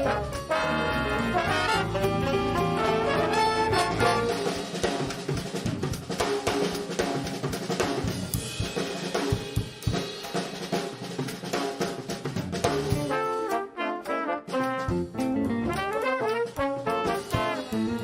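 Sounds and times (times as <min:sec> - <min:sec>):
brass chord: 0:00.0 - 0:04.7, 0:13.0 - 0:18.0
drum kit solo: 0:00.0 - 0:18.0.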